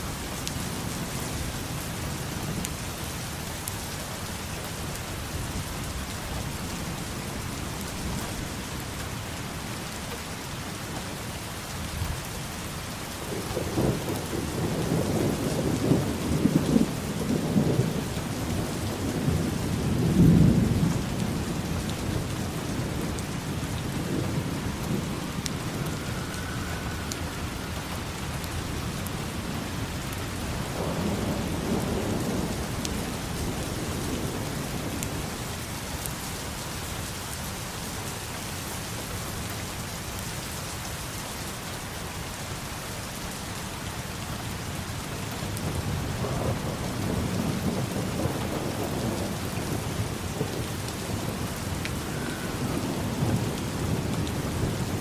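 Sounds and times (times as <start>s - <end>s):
steady rain falling: 0.0s - 55.0s
thunder rolling: 18.7s - 28.8s.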